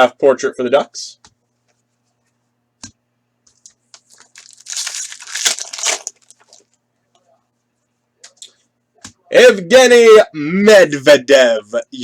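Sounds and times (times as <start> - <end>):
foil wrapper tearing and crinkling: 4.1 - 6.7.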